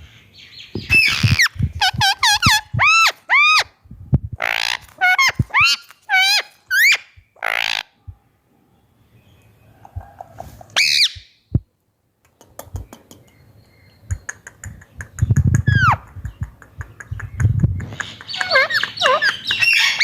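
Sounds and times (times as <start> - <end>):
parrot squawking: 0.9 - 3.7, 4.4 - 8.0, 10.8 - 11.2, 15.7 - 16.0, 18.3 - 20.0.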